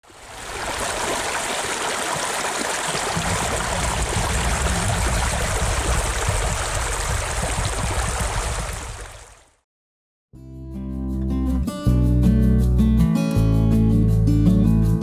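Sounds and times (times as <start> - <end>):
stream flowing and splashing: 0.0 - 9.6
deep rumble: 3.2 - 6.5.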